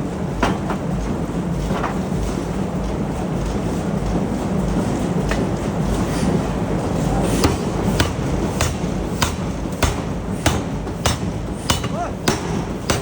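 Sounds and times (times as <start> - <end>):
low rumble of machinery: 0.0 - 13.0
hammer blows on metal: 7.4 - 13.0.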